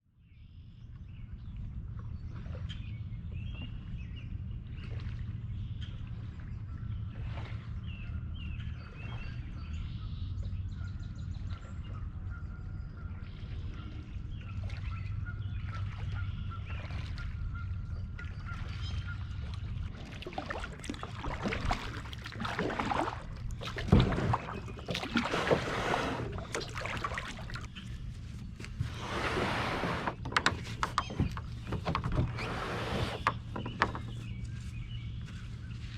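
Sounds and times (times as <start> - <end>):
steady low rumble: 0.3 - 35.9
birds chirping: 2.1 - 35.9
kayak paddle splashing water: 13.0 - 35.9.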